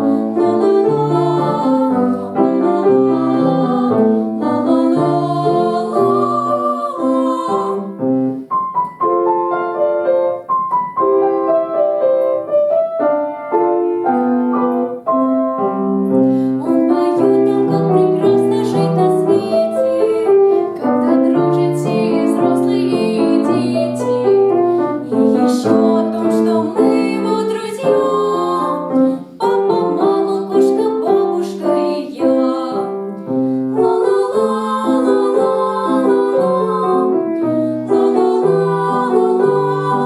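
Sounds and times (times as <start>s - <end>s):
piano melody over repeating bass: 0.0s - 16.4s.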